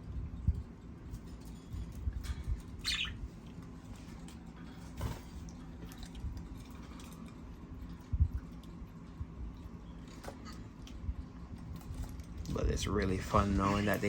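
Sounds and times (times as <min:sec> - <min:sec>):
birds pecking and nibbling greens: 0:00.0 - 0:14.0
short high bird chirp: 0:02.8 - 0:03.2.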